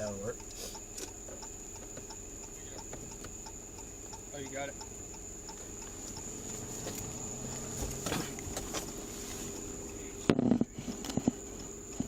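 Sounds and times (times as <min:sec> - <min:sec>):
electrical hum and whine: 0:00.0 - 0:12.0
knocks and rustling: 0:06.5 - 0:09.6.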